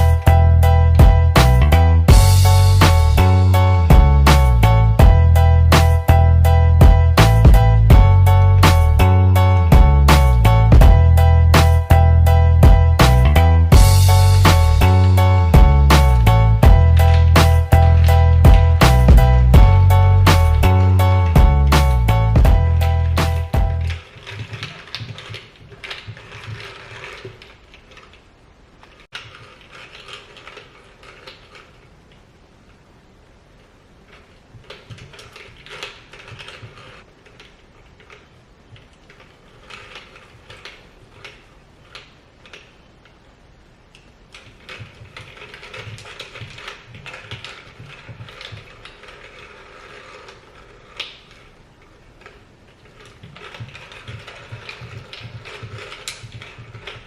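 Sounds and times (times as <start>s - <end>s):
plastic treat toy clicking and rattling: 23.0s - 28.2s, 28.8s - 31.9s, 34.1s - 42.8s, 43.9s - 57.0s.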